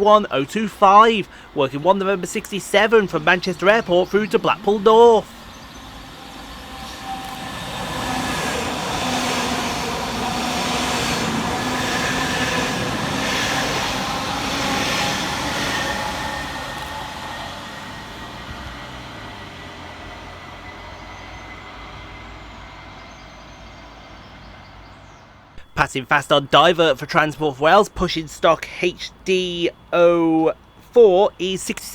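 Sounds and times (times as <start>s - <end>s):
electric traction whine: 0.0s - 24.8s, 25.6s - 31.9s
train wheels on rail: 0.0s - 31.9s.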